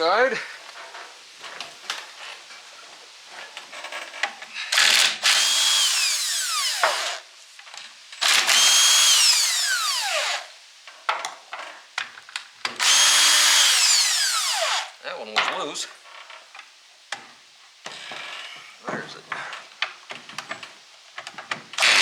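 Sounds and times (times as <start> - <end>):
impact wrench bursts: 8.2 - 10.5, 12.8 - 14.9, 21.8 - 22.0.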